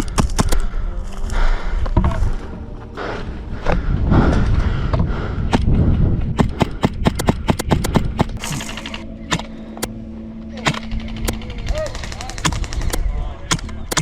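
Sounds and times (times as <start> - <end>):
airsoft guns firing: 6.4 - 9.6, 10.6 - 14.0.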